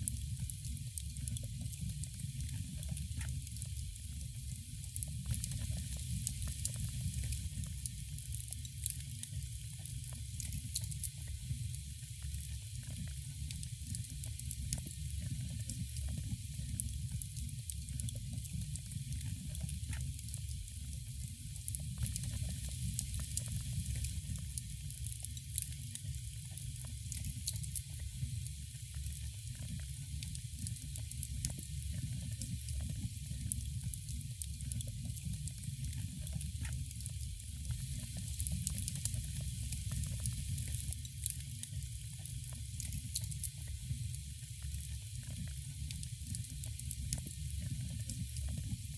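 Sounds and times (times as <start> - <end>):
wood fire crackling: 33.4 - 41.9.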